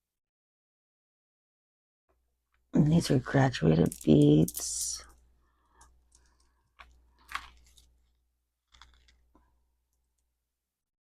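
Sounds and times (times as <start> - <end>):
beaded necklace clicking: 3.8 - 10.3.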